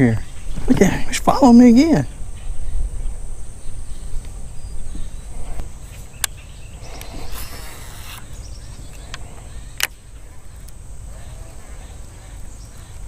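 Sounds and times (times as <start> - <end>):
high insect drone: 0.0 - 13.0
wind rumbling on microphone: 0.0 - 13.0
brief hiss: 6.8 - 8.4.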